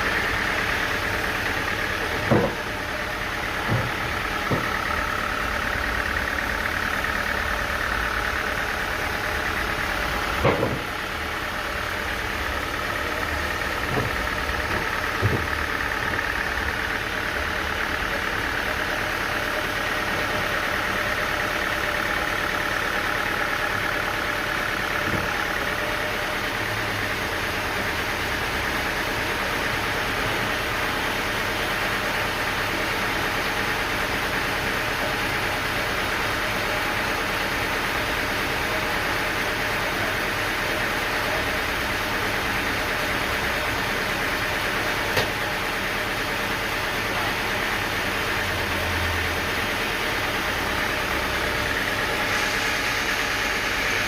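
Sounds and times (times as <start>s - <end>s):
sawmill machinery humming: 0.0s - 54.0s
sharp knocks: 2.2s - 2.6s, 10.4s - 10.9s.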